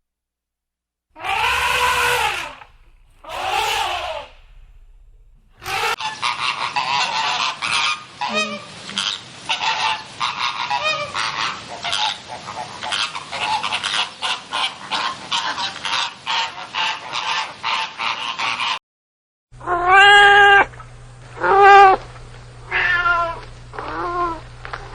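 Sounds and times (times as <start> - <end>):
falling bird calls: 1.2 - 6.0
flock of birds calling: 1.2 - 6.0.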